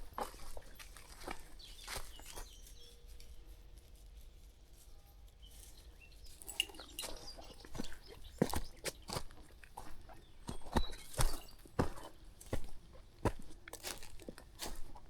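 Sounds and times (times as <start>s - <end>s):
footsteps on a path: 0.0s - 2.8s, 6.3s - 15.0s.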